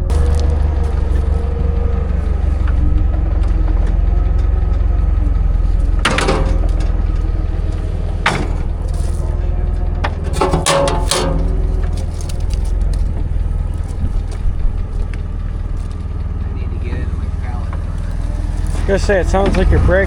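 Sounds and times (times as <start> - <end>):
wooden pallet cracking: 0.0 - 9.4, 10.0 - 16.2
heavy machine engine running: 0.0 - 20.0.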